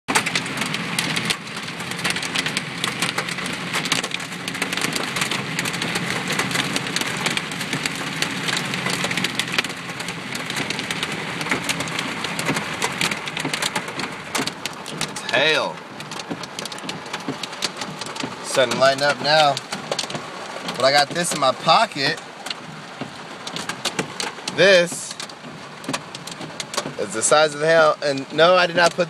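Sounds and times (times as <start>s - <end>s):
hail hitting car roof: 0.1s - 29.0s.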